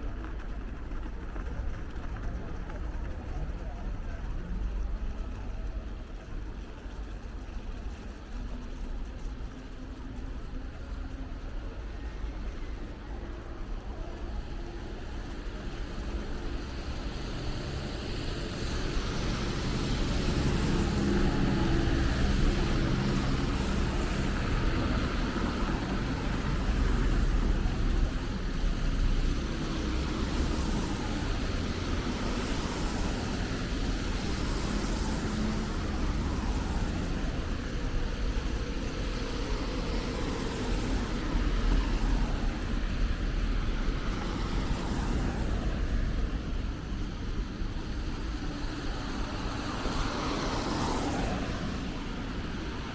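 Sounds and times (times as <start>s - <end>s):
cars passing: 13.8s - 52.9s.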